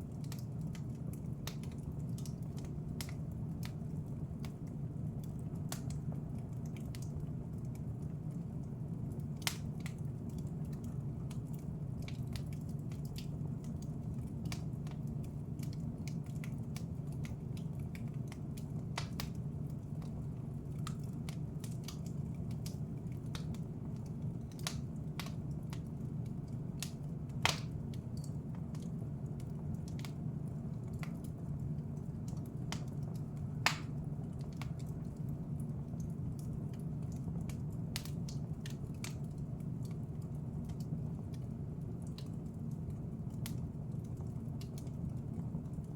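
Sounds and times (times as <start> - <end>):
wood fire crackling: 0.0 - 45.9.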